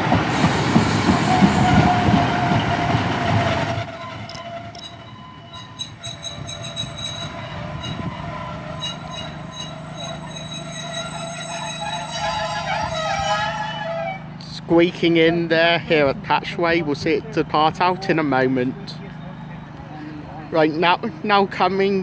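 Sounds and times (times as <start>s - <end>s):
train rumble with wheel clatter: 0.0s - 14.7s
wheels and brakes squealing: 1.2s - 14.5s.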